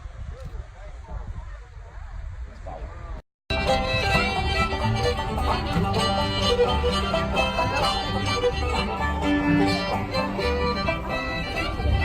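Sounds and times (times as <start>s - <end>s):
banjo: 3.5s - 12.0s
bluegrass band music: 3.5s - 12.0s
fiddle: 3.5s - 12.0s.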